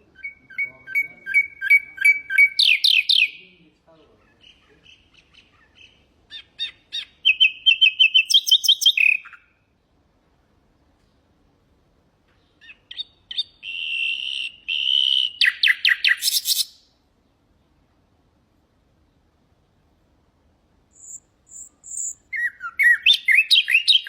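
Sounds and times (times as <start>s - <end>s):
nightingale singing trills: 0.0s - 9.8s, 12.4s - 17.8s, 20.9s - 24.0s.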